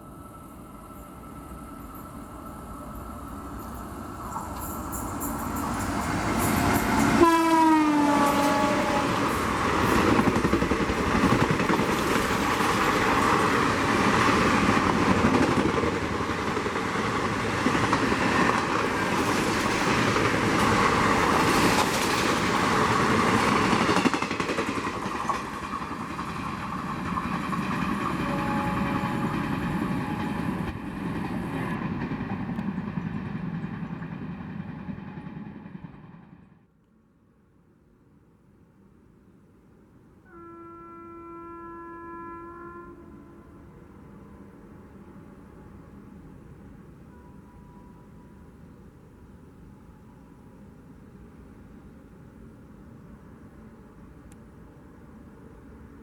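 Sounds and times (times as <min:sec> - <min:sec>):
train coaches rushing past: 0:00.0 - 0:36.6
train horn: 0:06.3 - 0:09.5, 0:28.0 - 0:30.8, 0:40.2 - 0:48.5.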